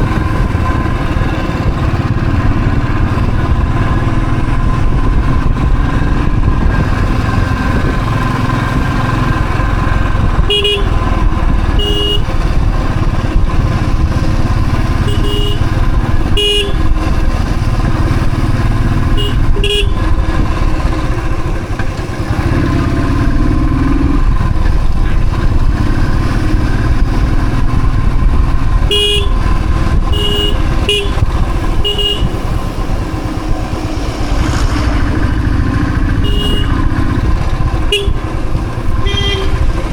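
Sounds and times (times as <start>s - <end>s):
motorcycle engine running: 0.0s - 39.9s
short horn toots: 11.7s - 12.3s, 15.0s - 15.7s, 19.1s - 20.0s, 28.9s - 29.4s, 30.1s - 31.2s, 31.8s - 32.4s, 36.1s - 36.9s, 39.0s - 39.7s.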